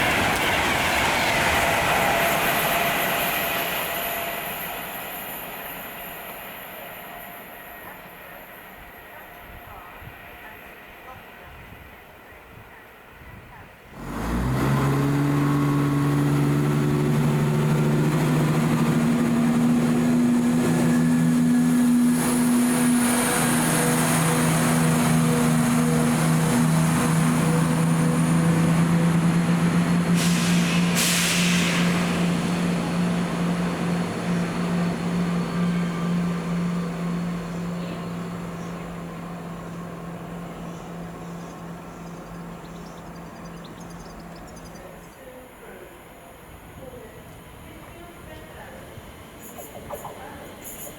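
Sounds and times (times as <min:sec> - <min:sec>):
train droning: 0:00.0 - 0:12.5, 0:13.9 - 0:50.9
air hiss bursts: 0:30.2 - 0:32.2.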